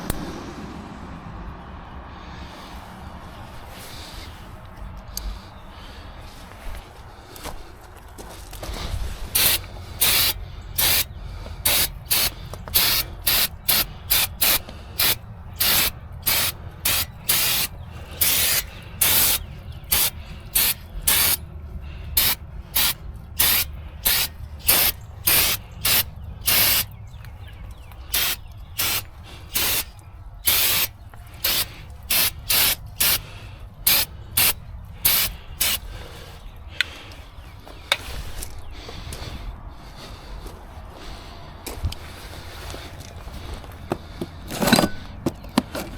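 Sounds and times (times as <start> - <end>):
hissing spray bursts: 9.3 - 21.4, 22.2 - 26.9, 28.1 - 35.8.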